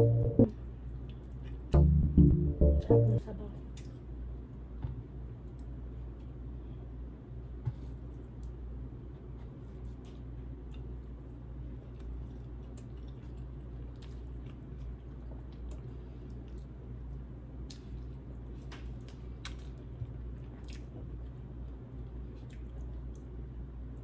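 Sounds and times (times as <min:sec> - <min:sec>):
steady low hum: 0:00.0 - 0:24.0
wet chewing and lip smacks: 0:00.8 - 0:01.7, 0:09.6 - 0:24.0.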